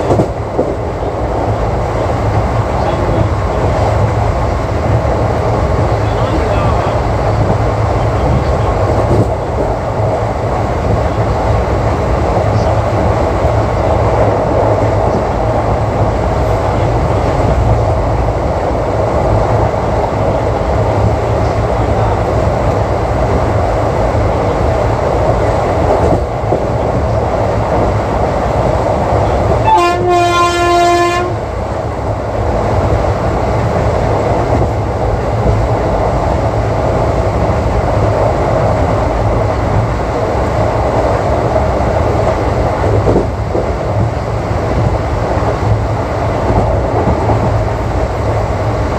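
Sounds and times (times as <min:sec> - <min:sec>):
train coach running on track: 0:00.0 - 0:48.9
locomotive horn blast: 0:29.6 - 0:31.5.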